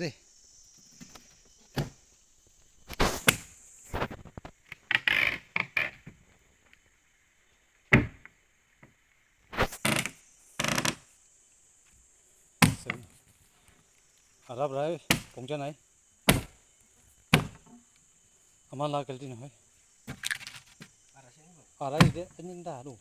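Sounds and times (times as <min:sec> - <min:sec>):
high-pitched insect drone: 0:00.0 - 0:06.1, 0:09.5 - 0:12.4
heavy knocks and thuds: 0:07.9 - 0:08.3, 0:16.3 - 0:16.6, 0:17.3 - 0:17.8, 0:22.0 - 0:22.4.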